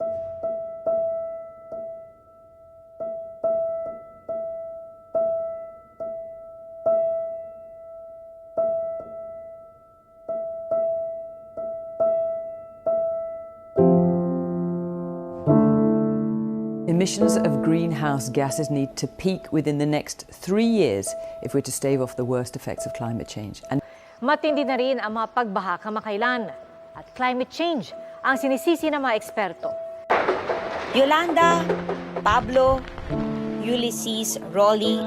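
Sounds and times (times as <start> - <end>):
piano note struck repeatedly: 0.0 - 18.7, 29.7 - 34.1
low piano chords: 0.0 - 35.0.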